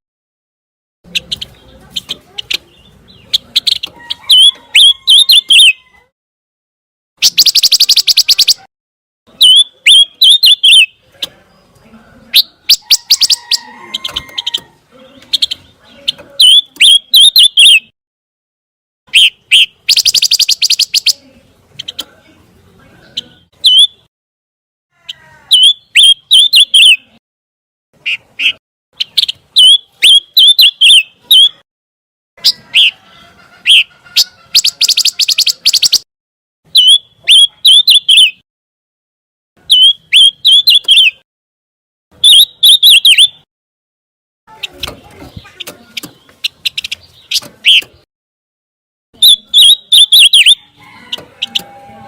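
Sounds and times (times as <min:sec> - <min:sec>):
bird calling with ticking notes: 0:01.1 - 0:06.0, 0:07.2 - 0:08.7, 0:09.3 - 0:11.4, 0:12.3 - 0:17.9, 0:19.1 - 0:21.2, 0:23.2 - 0:24.1, 0:25.5 - 0:27.2, 0:28.0 - 0:31.6, 0:33.6 - 0:36.0, 0:36.7 - 0:38.4, 0:39.6 - 0:41.2, 0:42.2 - 0:43.5, 0:44.5 - 0:48.1, 0:49.2 - 0:51.8.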